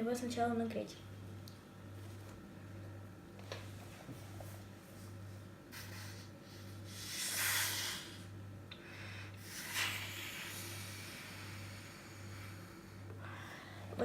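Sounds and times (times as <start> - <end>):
breath blown through a straw: 5.7 - 8.3, 9.4 - 13.1.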